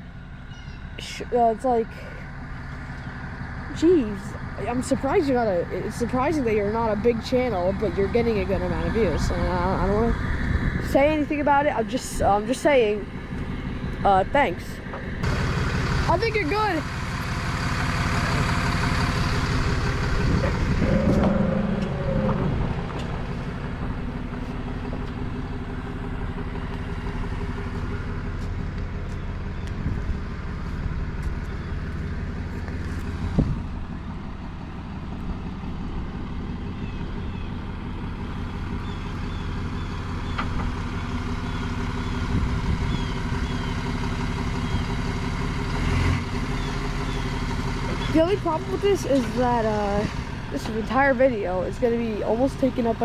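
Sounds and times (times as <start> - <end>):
truck engine running: 0.0 - 53.0.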